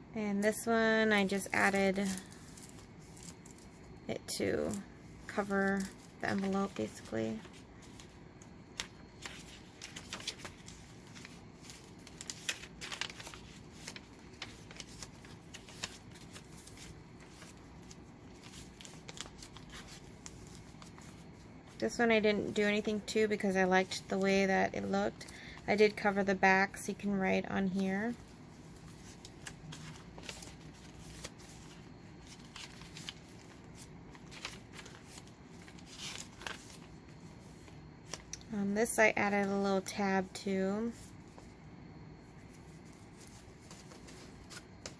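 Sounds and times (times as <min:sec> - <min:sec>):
paper clicks and crinkles: 0:00.9 - 0:26.3, 0:28.0 - 0:38.5, 0:42.4 - 0:44.9
paper pages rustling: 0:01.0 - 0:03.8, 0:04.6 - 0:21.8, 0:28.0 - 0:38.4, 0:42.4 - 0:44.9.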